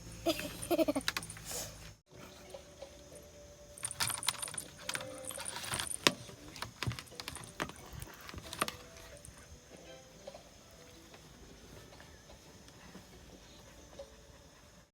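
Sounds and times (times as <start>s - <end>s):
handling rustles: 0.3s - 2.0s, 3.8s - 9.5s.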